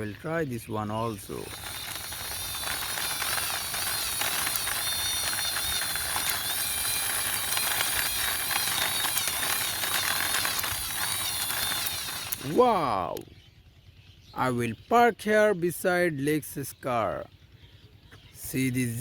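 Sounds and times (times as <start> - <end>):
toy jeep whirring rattle: 0.0 - 13.2.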